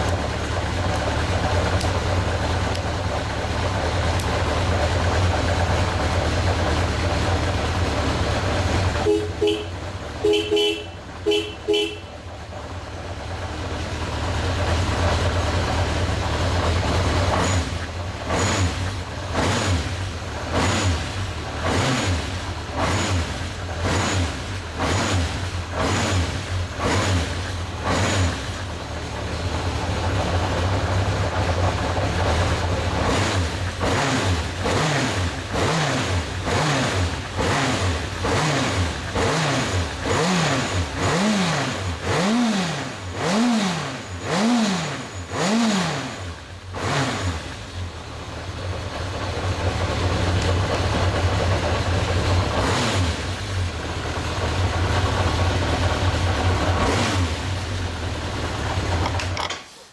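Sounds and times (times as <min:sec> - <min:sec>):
motorcycle engine running and revving: 0:00.0 - 0:59.7
short horn-like beeps: 0:09.0 - 0:12.2.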